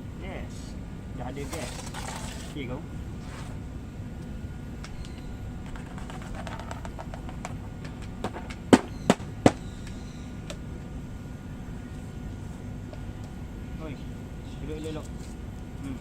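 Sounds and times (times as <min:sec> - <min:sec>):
tortoises clicking and tapping: 0:04.2 - 0:10.7
sharp knocks: 0:05.7 - 0:10.0.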